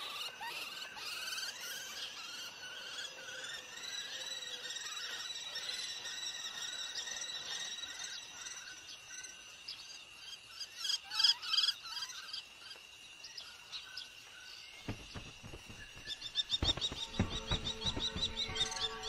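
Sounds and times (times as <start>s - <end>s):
high insect drone: 0.0s - 19.0s
small birds chirping: 0.0s - 19.0s
low thuds: 14.8s - 19.0s.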